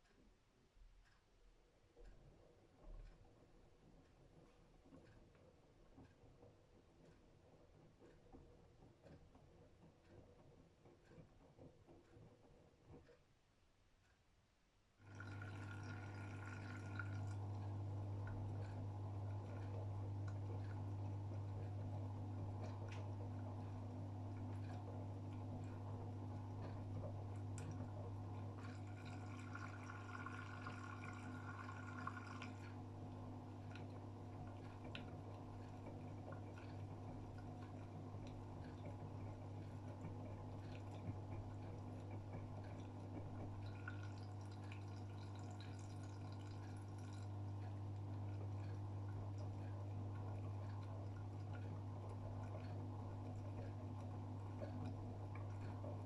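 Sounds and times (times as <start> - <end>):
small clicks: 1.0 - 14.3
low machine hum: 15.0 - 56.0
water splashing in washing machine: 15.0 - 56.0.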